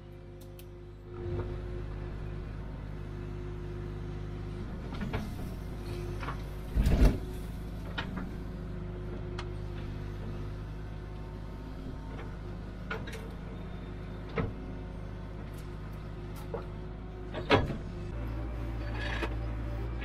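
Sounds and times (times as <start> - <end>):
excavator diesel engine running: 0.0 - 20.0
bucket and hydraulics clunking: 4.8 - 8.4, 16.3 - 20.0.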